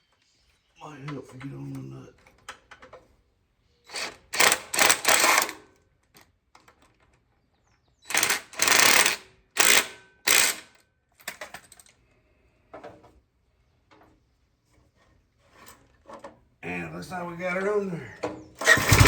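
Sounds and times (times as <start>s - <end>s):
hand tools clicking on metal: 8.1s - 11.9s.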